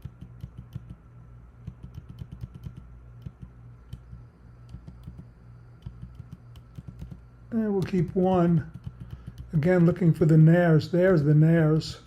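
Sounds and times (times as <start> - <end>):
low hum: 0.0 - 12.0
keyboard keys clicking: 1.6 - 4.1, 5.8 - 7.2.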